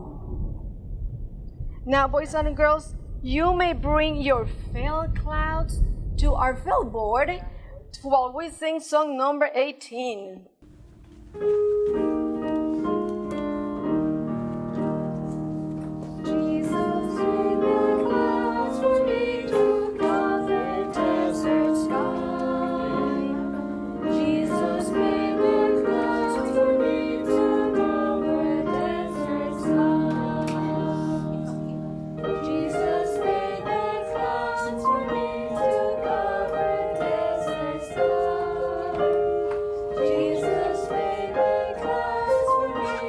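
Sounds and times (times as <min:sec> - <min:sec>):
piano accompaniment: 0:10.6 - 0:43.0.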